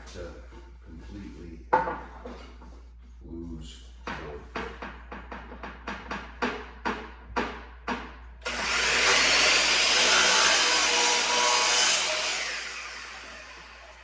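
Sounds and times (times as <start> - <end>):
power saw cutting: 8.4 - 14.0.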